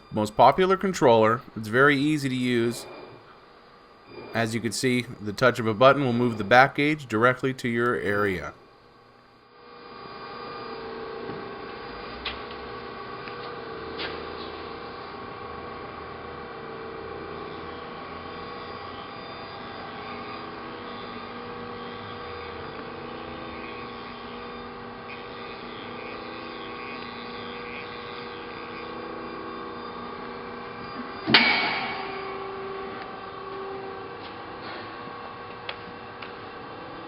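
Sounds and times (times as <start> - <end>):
hydraulic press pump humming: 9.8 - 37.0
loud ringing bang: 31.2 - 33.0.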